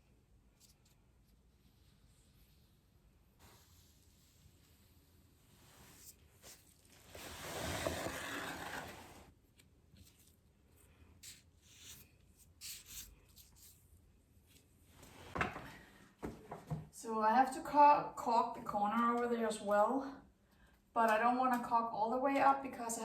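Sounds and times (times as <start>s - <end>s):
rough rubbing: 6.4s - 9.3s.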